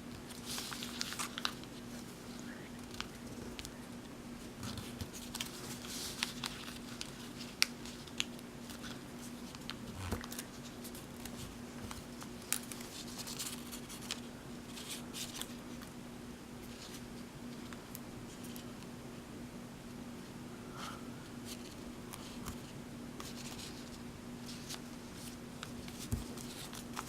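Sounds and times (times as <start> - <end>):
faint steady hum: 0.0 - 27.0
paper folding and crinkling: 0.2 - 3.8, 4.6 - 15.9, 21.5 - 27.0.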